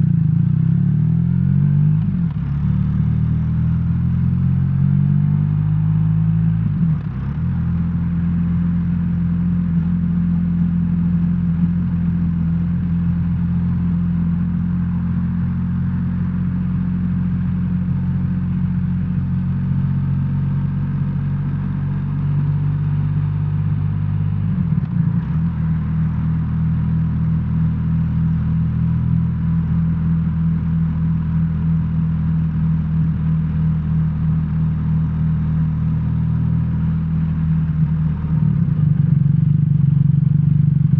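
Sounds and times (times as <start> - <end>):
motorcycle engine running: 5.8 - 40.9.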